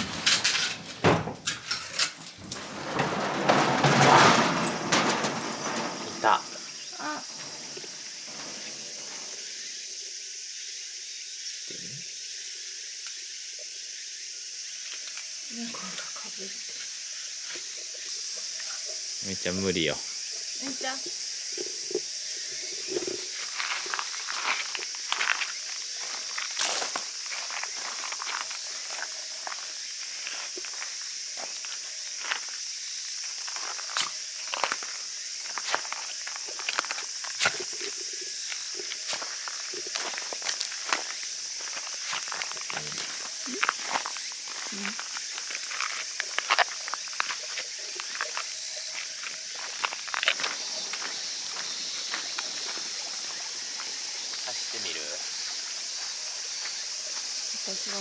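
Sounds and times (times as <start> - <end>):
insects buzzing: 0.0 - 58.0
footsteps walking: 33.5 - 54.4.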